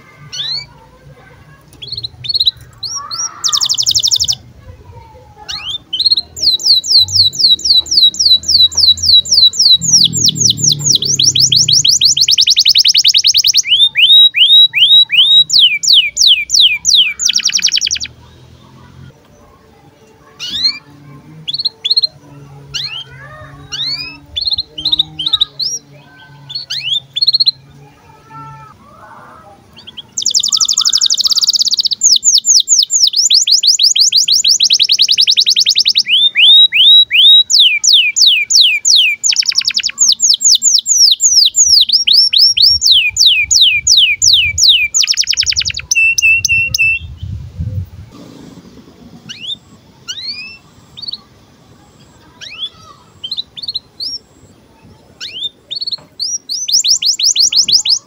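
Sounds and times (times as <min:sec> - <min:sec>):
canary singing: 0:00.0 - 0:04.6, 0:05.4 - 0:58.0.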